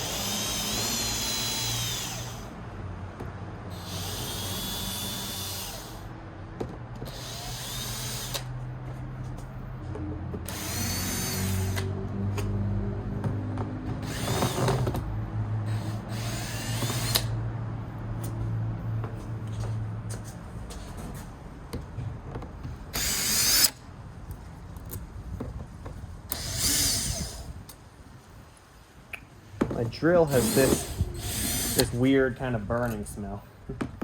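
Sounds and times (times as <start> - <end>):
electric drill motor whining: 0.0 - 2.6, 3.7 - 6.1, 7.0 - 8.5, 10.4 - 12.0, 14.0 - 15.0, 15.7 - 17.4, 22.9 - 23.8, 26.3 - 27.6, 30.3 - 32.0.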